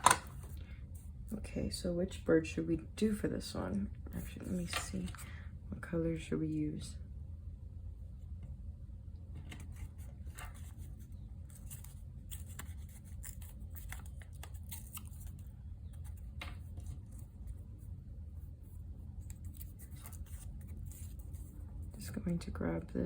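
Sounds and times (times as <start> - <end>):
steady low hum: 0.0 - 23.0
paper rustling: 9.4 - 17.7, 19.2 - 22.0
scratching on paper: 9.7 - 22.2.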